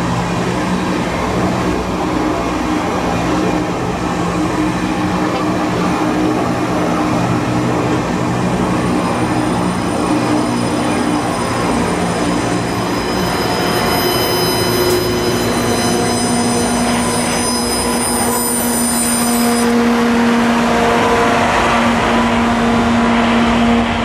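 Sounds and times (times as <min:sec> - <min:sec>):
train wheels rumbling on rail: 0:00.0 - 0:24.0
high-pitched whine: 0:08.9 - 0:19.8.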